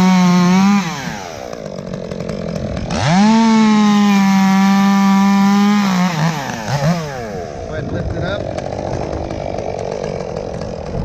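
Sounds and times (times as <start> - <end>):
chainsaw revving and idling: 0.0 - 11.0.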